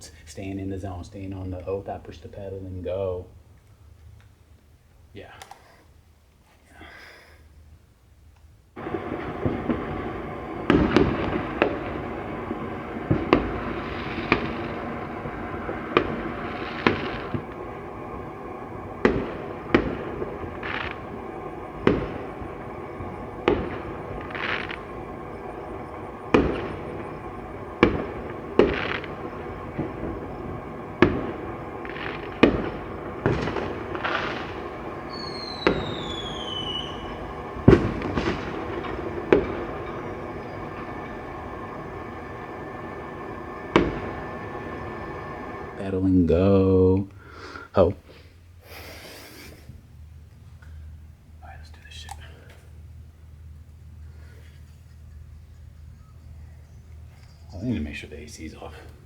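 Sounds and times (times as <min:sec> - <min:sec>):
firework bangs: 0:00.0 - 0:04.4, 0:08.7 - 0:59.0
crackling hiss: 0:00.0 - 0:59.0
fireworks rumble: 0:00.0 - 0:59.0
falling firework whistle: 0:08.8 - 0:51.6.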